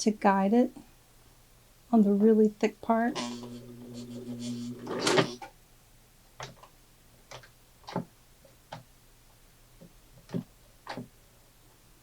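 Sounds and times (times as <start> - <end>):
faint motor hum: 2.8 - 5.4
sewing machine clunk: 3.1 - 5.5.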